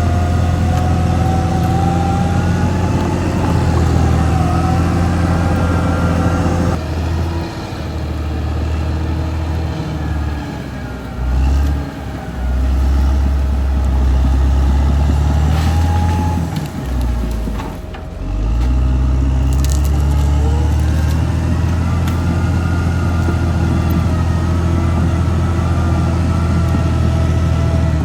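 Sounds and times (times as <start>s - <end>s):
wood cracking: 0.0s - 6.8s, 12.6s - 28.0s
bulldozer diesel engine: 0.0s - 28.0s.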